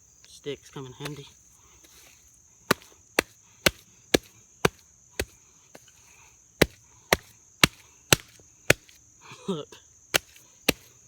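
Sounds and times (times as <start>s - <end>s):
stick whacking wet dirt: 1.0s - 6.0s, 6.6s - 9.0s, 10.1s - 11.0s.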